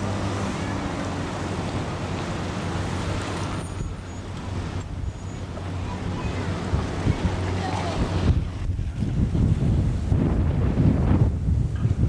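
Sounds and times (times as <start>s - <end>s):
water rushing along hull: 0.0s - 12.0s
wind buffeting microphone: 5.6s - 12.0s.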